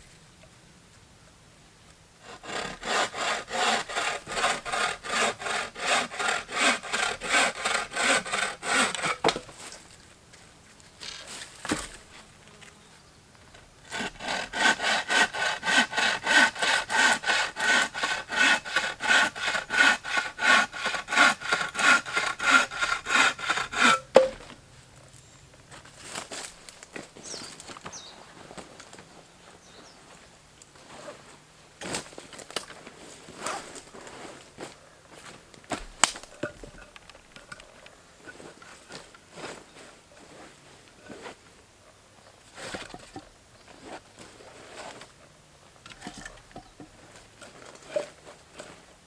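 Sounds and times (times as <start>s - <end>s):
bow saw cutting wood: 2.2s - 9.5s, 13.8s - 24.5s
sharp knock: 23.9s - 24.5s.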